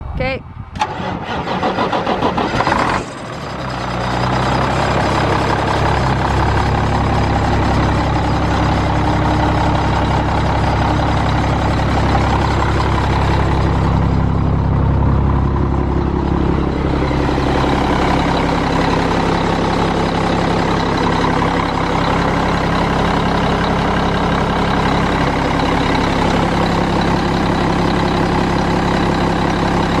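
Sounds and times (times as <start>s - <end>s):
truck diesel engine idling: 1.8s - 30.0s.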